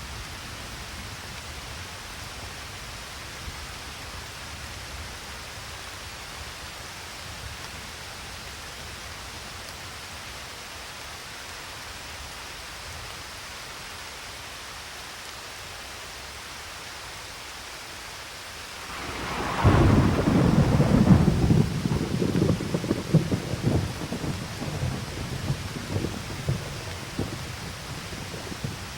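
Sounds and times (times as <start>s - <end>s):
rain hissing: 1.5s - 28.9s
thunder clap rumbling: 18.7s - 28.9s.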